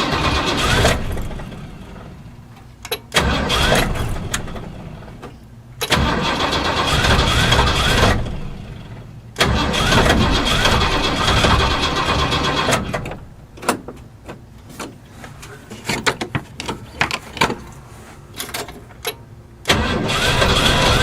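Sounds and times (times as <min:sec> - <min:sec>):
engine cranking: 0:00.0 - 0:02.1, 0:03.1 - 0:04.8, 0:05.8 - 0:13.2, 0:18.4 - 0:21.0.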